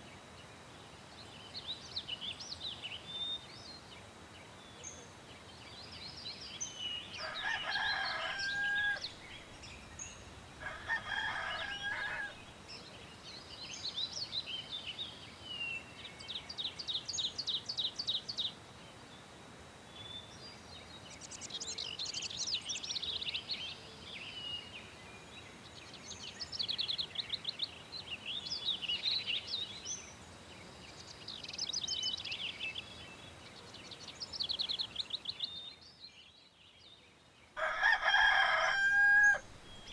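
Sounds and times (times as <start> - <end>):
small birds trilling: 4.8 - 18.4, 37.5 - 39.9
rooster crowing: 7.2 - 9.2, 10.6 - 12.5, 37.6 - 39.9.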